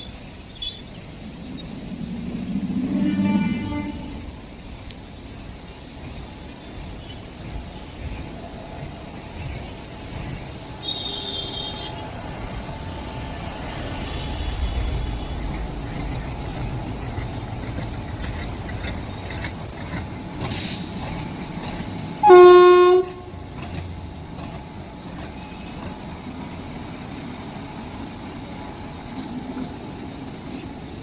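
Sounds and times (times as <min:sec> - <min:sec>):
train rumbling: 0:00.0 - 0:31.0
train horn blast: 0:02.8 - 0:04.5, 0:10.8 - 0:12.1, 0:22.2 - 0:23.4.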